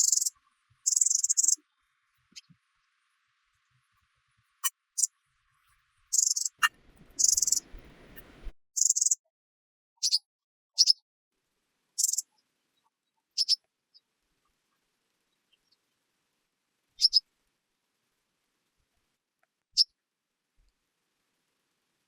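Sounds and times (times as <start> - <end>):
bird chirps: 0.0 - 1.6, 6.1 - 9.2, 10.0 - 10.2, 10.8 - 11.0, 12.0 - 12.4, 13.4 - 13.6, 17.0 - 17.2
low rustle: 6.7 - 8.5.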